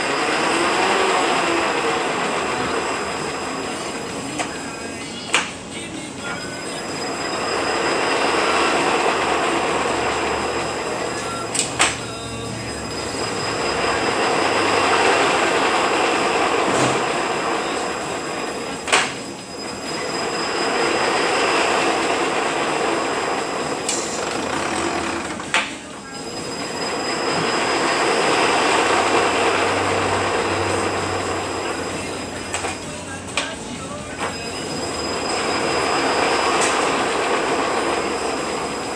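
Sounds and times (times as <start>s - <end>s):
transmission gear whine and rumble: 0.0s - 38.9s.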